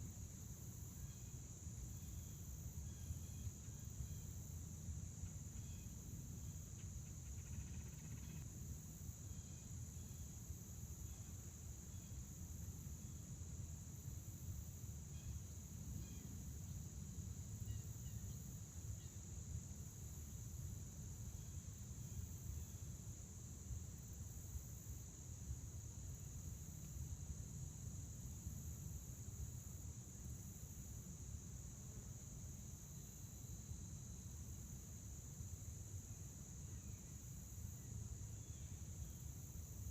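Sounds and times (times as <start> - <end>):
crickets chirping: 0.0 - 39.9
faint bird chirps: 6.8 - 8.4.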